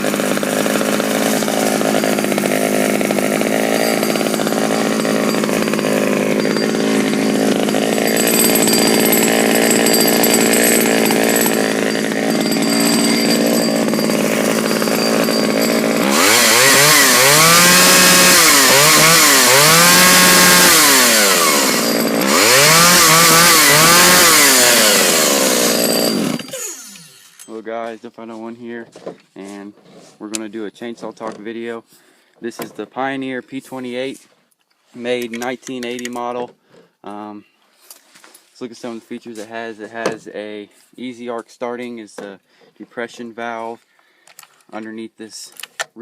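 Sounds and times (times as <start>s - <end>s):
chainsaw idling and revving: 0.0s - 27.5s.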